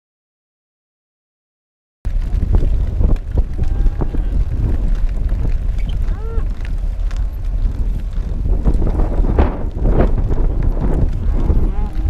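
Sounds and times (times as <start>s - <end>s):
wind buffeting microphone: 2.1s - 12.0s.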